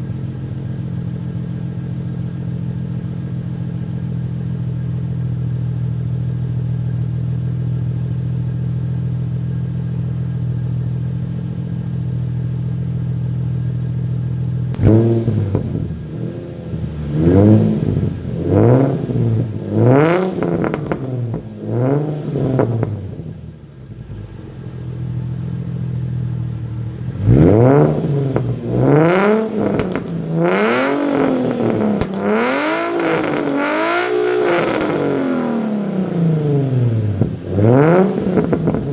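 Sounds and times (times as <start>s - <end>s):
car engine idling: 0.0s - 38.9s
engine throttle blips: 9.9s - 38.9s.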